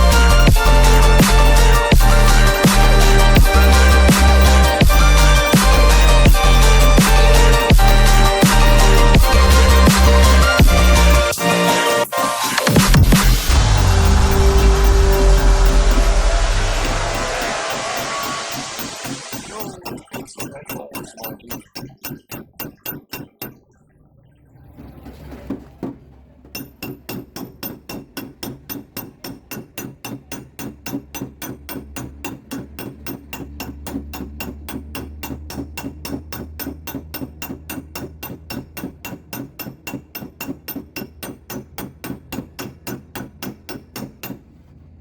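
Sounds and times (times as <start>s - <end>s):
hammer tapping steel panel: 25.8s - 44.6s.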